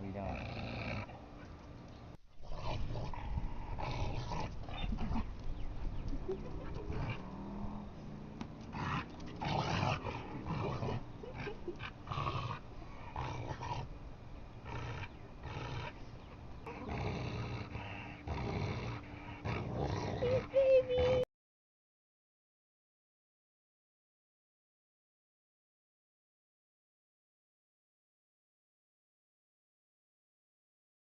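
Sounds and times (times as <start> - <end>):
dog growling and snarling: 0.2 - 1.2, 2.4 - 5.3, 6.4 - 14.0, 14.6 - 16.0, 16.6 - 21.2.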